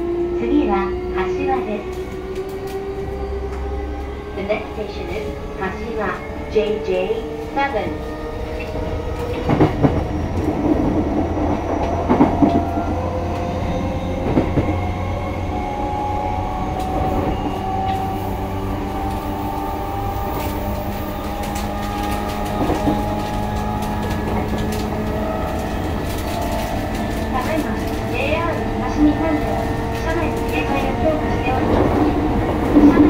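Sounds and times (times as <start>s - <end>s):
train motors and wheels rumbling: 0.0s - 33.0s
wheels clacking over rail joints: 19.0s - 33.0s.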